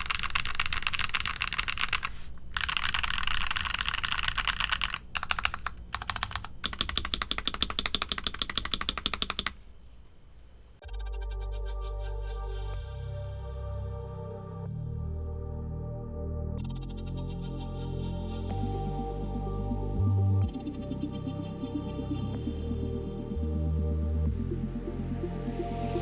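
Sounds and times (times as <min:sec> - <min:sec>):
mechanical keyboard typing: 0:00.0 - 0:09.6
music: 0:10.8 - 0:26.0.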